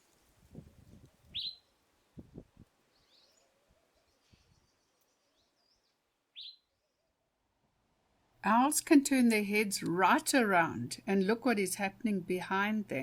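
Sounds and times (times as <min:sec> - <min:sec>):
faint outdoor ambience: 0:00.0 - 0:13.0
high bird chirps: 0:01.3 - 0:01.7, 0:04.4 - 0:06.7.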